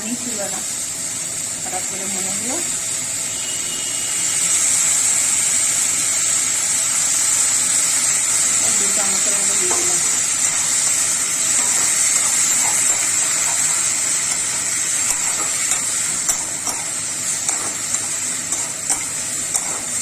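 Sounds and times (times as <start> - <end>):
sauce and vegetables sizzling: 0.0 - 20.0
spoon clicking against pan: 11.6 - 20.0.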